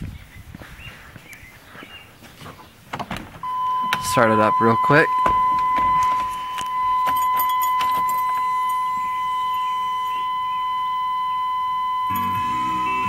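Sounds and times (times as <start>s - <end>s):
steady high-pitched tone: 3.4s - 13.0s
keys jangling and clicking: 5.8s - 9.1s.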